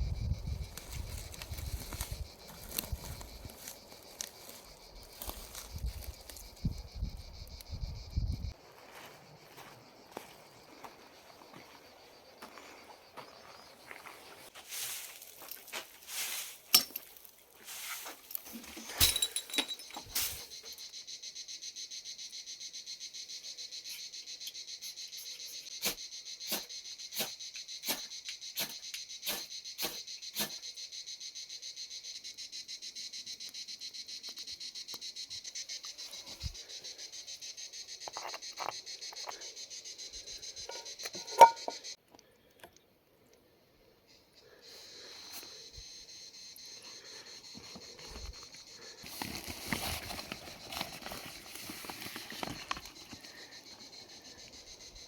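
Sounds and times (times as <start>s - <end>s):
crickets chirring: 0.0s - 42.5s, 43.3s - 55.0s.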